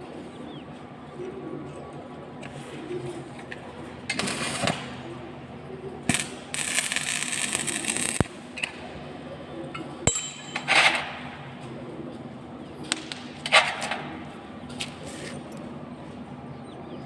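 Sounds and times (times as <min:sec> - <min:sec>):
arc welding crackling hiss: 0:06.1 - 0:08.5.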